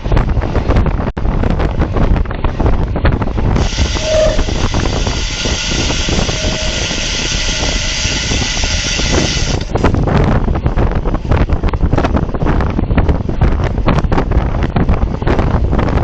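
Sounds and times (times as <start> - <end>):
wind buffeting microphone: 0.0 - 16.0
steady hiss: 3.6 - 9.8.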